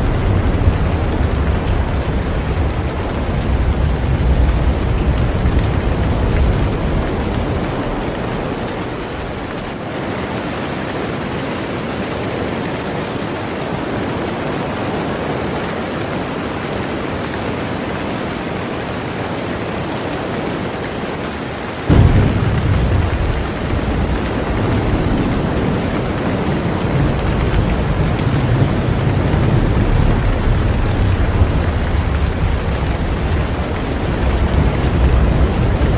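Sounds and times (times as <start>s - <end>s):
low thunder rumble: 0.0s - 9.8s, 21.9s - 35.9s
heavy rain on a boat: 0.0s - 35.9s.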